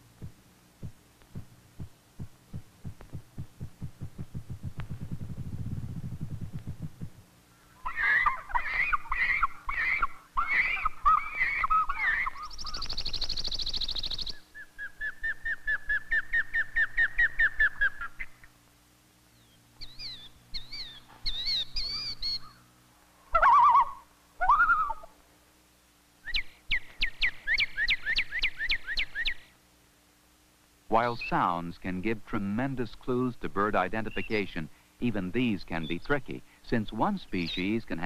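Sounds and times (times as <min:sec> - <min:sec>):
birds singing and calling: 0:06.1 - 0:18.6, 0:19.3 - 0:22.7, 0:26.3 - 0:29.6, 0:33.8 - 0:36.3, 0:37.1 - 0:38.0
bird trill: 0:07.6 - 0:18.5, 0:19.4 - 0:22.7, 0:23.3 - 0:25.1, 0:26.2 - 0:29.5, 0:34.0 - 0:34.5.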